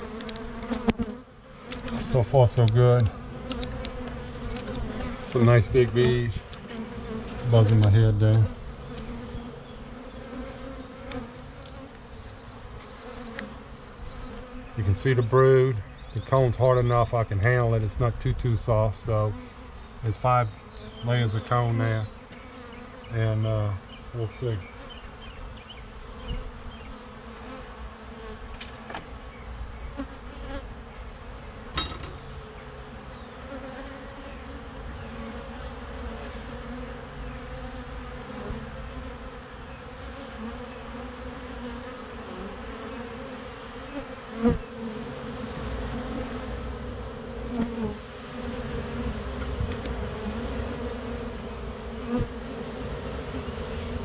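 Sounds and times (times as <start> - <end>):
bees buzzing: 0.0 - 54.0
sharp knocks: 31.7 - 32.3.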